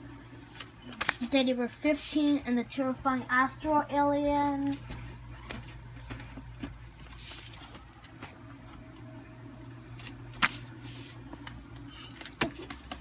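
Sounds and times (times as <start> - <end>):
low room hum: 0.0 - 13.0
paper rustling: 0.5 - 2.2, 7.0 - 8.4, 9.9 - 13.0.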